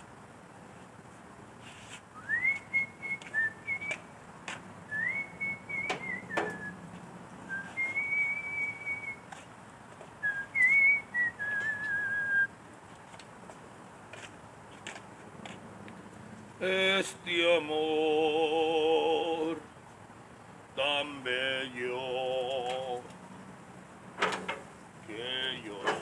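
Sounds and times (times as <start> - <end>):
man whistling a slow tune: 2.2 - 4.0, 4.9 - 6.8, 7.5 - 9.3, 10.2 - 12.5.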